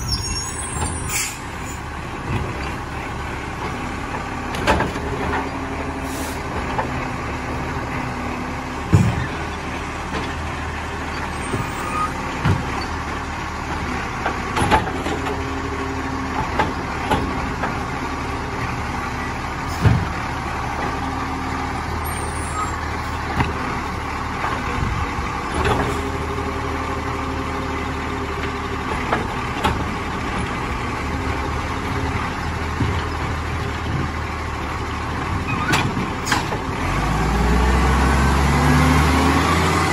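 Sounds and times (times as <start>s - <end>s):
truck engine running: 0.0s - 39.9s
sharp knocks and clanks: 8.8s - 9.5s, 12.4s - 12.8s, 19.7s - 20.2s.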